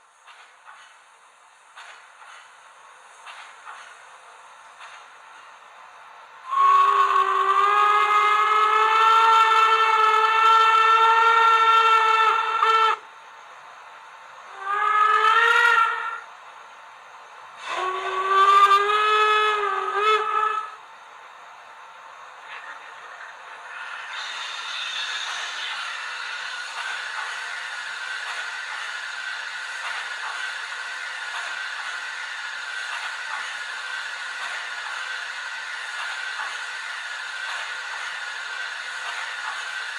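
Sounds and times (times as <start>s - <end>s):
soft steam hiss: 0.0s - 39.9s
steam whistle blasts: 6.4s - 13.0s, 14.5s - 16.2s, 17.6s - 20.8s.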